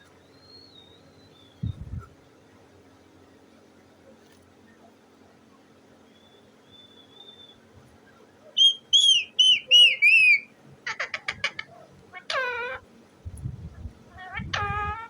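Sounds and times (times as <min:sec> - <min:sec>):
parrot whistling and calling: 0:08.5 - 0:12.8, 0:14.1 - 0:15.0
low rumble: 0:13.3 - 0:15.0.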